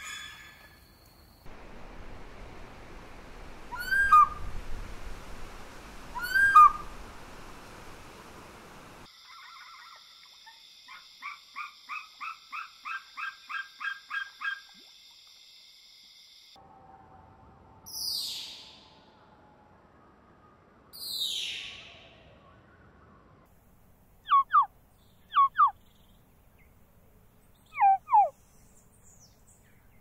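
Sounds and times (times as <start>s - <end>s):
sharp downward-sweeping bird call: 3.7s - 4.4s, 24.3s - 24.7s, 25.3s - 25.8s, 27.8s - 28.3s
rapid repeated bird calls: 24.3s - 26.0s, 27.6s - 28.4s.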